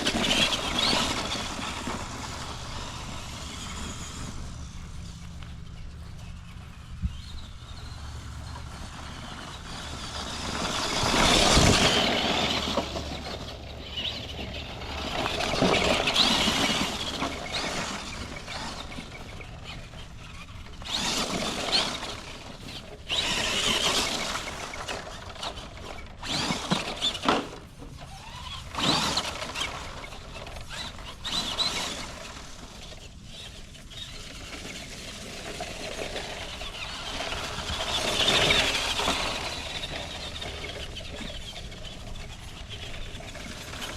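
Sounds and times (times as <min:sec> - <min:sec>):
rc truck motor whining: 0:00.0 - 0:43.9
tyres churning over ground: 0:00.0 - 0:43.9.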